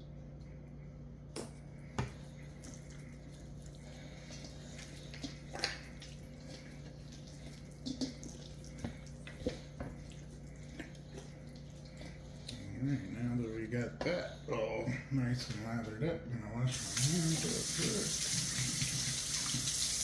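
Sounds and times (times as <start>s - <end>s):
steady low hum: 0.0s - 18.7s.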